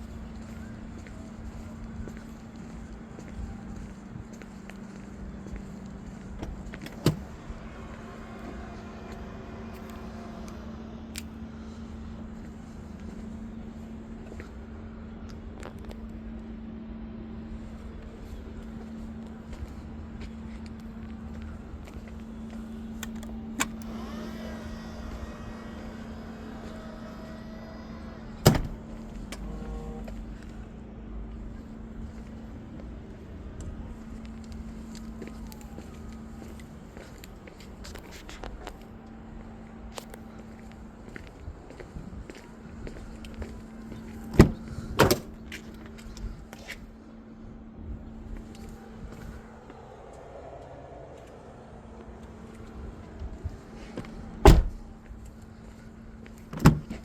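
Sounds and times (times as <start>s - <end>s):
car engine idling: 6.2s - 14.3s, 20.9s - 32.6s
car door shutting: 6.4s - 7.5s, 23.0s - 30.2s, 43.9s - 45.8s, 54.4s - 54.8s, 56.5s - 57.0s
steady hum: 16.3s - 36.9s
electric motor whine: 23.0s - 30.2s.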